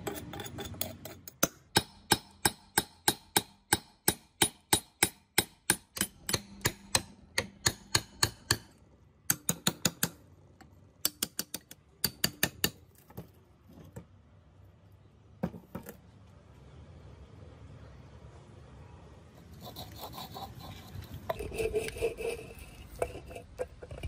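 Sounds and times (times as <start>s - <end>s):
hammer striking steel chisel: 0.0s - 10.2s, 11.0s - 12.8s.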